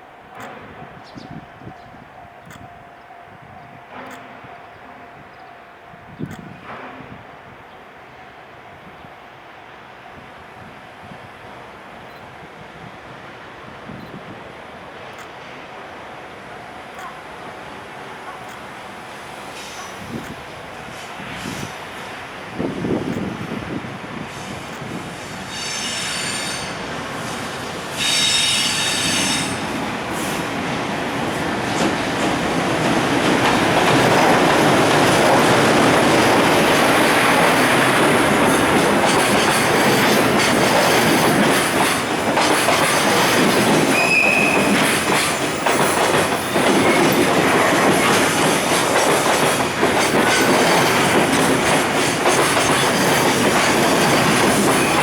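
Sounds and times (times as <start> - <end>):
freight train rolling past: 0.0 - 55.0
high squeals of train wheels: 15.0 - 55.0
wheels clicking over rail joints: 16.8 - 23.6, 29.5 - 55.0.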